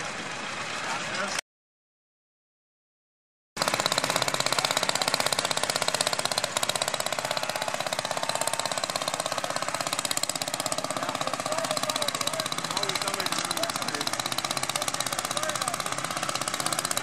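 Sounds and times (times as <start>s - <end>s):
tractor engine running: 3.6s - 17.0s.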